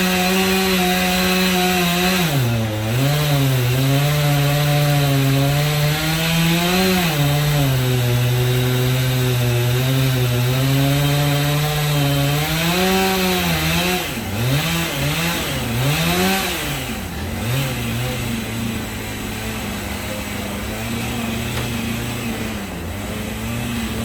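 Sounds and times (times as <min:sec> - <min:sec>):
chainsaw milling a log: 0:00.0 - 0:24.0.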